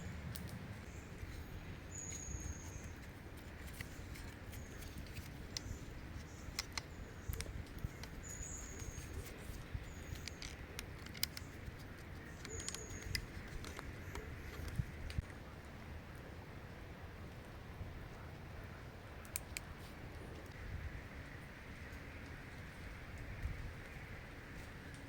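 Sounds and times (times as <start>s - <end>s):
low steady rumble: 0.0s - 25.0s
bird chirping: 0.8s - 3.1s, 3.7s - 15.1s
sharp clicks and ticks: 2.6s - 15.3s.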